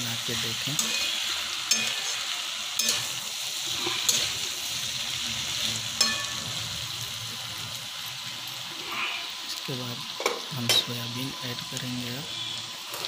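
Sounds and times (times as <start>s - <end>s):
vegetables sizzling in oil: 0.0s - 13.0s
steel spoon clicking on pan: 1.7s - 2.2s, 2.8s - 3.1s, 6.0s - 6.4s.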